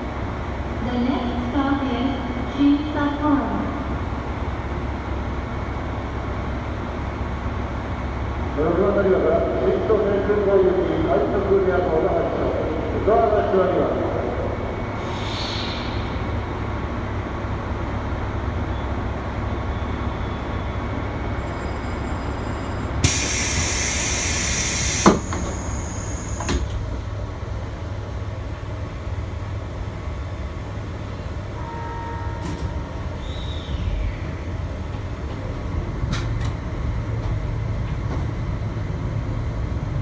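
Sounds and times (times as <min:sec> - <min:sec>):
electric train rumbling: 0:00.0 - 0:40.0
loud hiss: 0:23.0 - 0:26.4.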